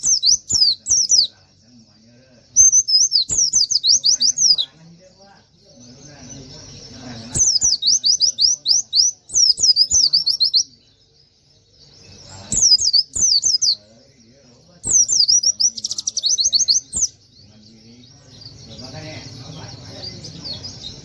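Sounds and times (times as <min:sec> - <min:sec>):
bird singing sharp high notes: 0:00.0 - 0:01.4, 0:02.5 - 0:04.8, 0:05.9 - 0:10.8, 0:12.1 - 0:14.0, 0:14.8 - 0:17.3.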